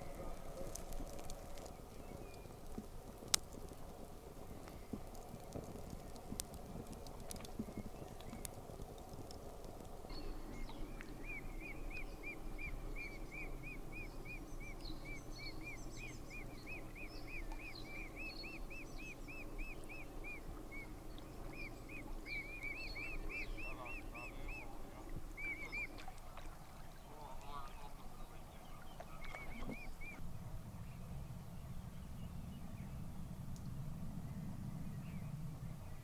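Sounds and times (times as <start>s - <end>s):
small birds chirping: 0.0s - 36.0s
bird calling: 10.1s - 30.2s.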